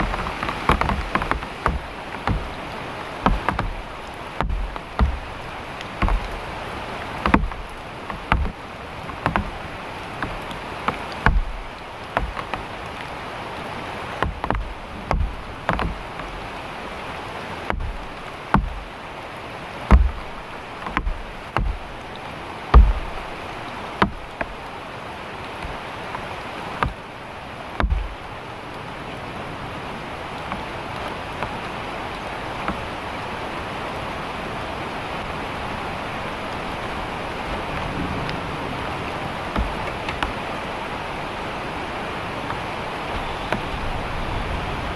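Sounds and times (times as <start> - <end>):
dull knocks and thuds: 0.0 - 12.8, 14.1 - 16.6, 17.6 - 19.0, 19.8 - 22.1, 22.7 - 24.7, 25.4 - 26.2, 26.8 - 27.0, 27.7 - 28.2, 39.5 - 40.4
heavy rain falling: 0.0 - 44.9.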